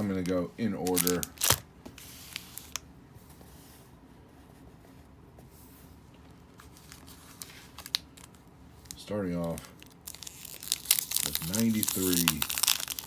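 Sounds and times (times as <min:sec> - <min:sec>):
card packs rustling: 0:00.0 - 0:02.8, 0:06.6 - 0:13.0.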